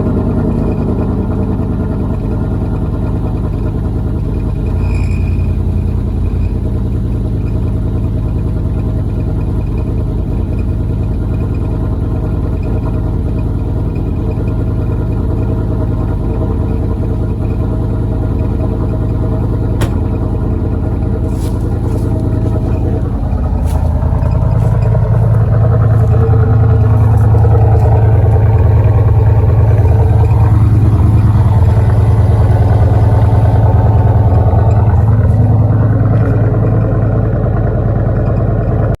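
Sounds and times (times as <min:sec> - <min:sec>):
loud unmuffled car engine revving: 0:00.0 - 0:39.0.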